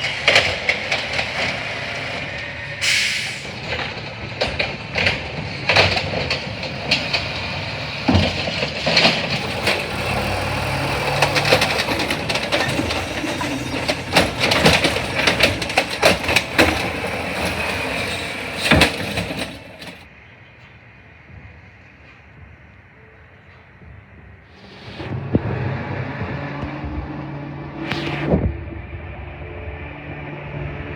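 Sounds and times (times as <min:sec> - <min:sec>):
garbage truck engine running: 0:00.0 - 0:20.1
metallic clanks and knocks: 0:03.6 - 0:20.1.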